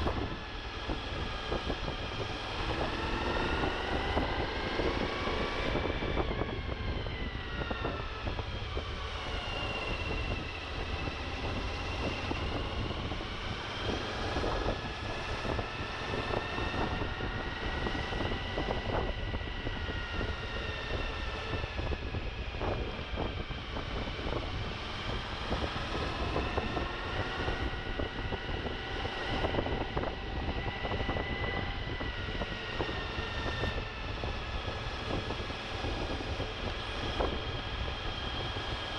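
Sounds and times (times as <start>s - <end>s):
wind rumbling on microphone: 0.0s - 38.9s.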